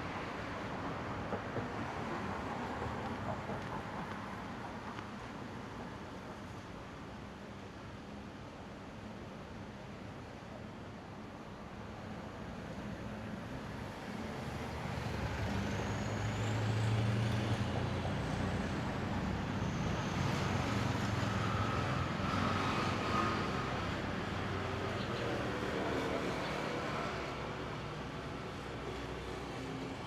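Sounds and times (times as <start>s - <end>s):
traffic passing: 13.1s - 30.0s.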